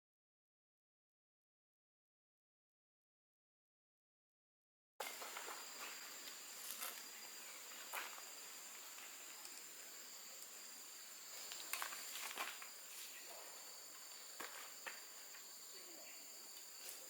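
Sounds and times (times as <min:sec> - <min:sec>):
insects droning: 0:05.0 - 0:17.0.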